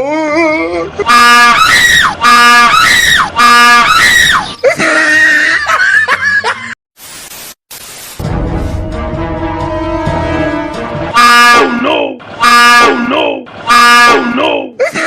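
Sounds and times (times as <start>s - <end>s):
wavering shrieks: 1.0s - 5.4s.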